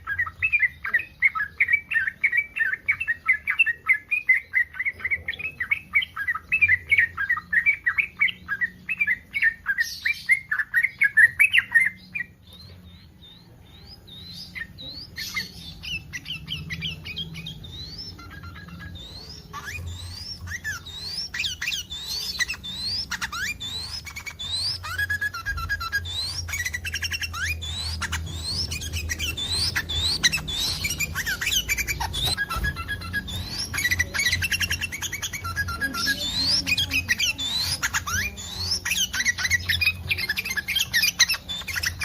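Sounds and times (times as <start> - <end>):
bird chattering: 0.0 - 42.0.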